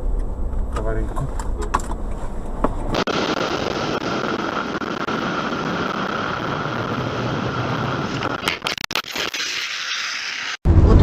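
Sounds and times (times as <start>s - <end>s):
car engine and road noise: 0.0s - 8.3s.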